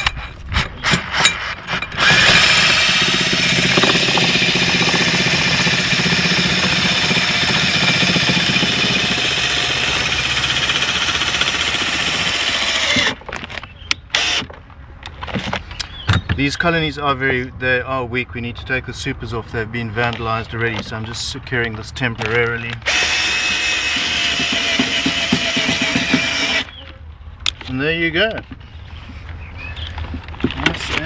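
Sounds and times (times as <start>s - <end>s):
cordless drill running: 2.0s - 13.2s, 14.2s - 14.5s, 22.9s - 26.7s.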